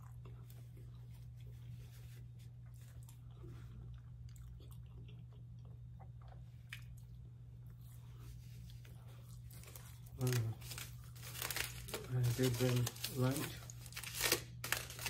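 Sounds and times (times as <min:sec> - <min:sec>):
person chewing: 0:00.0 - 0:12.0
steady low hum: 0:00.0 - 0:15.0.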